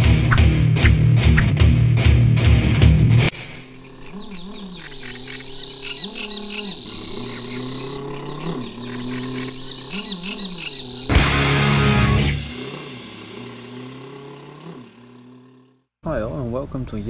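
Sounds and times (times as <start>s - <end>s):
insects trilling: 3.3s - 15.7s
loud noisy sound: 11.1s - 13.9s.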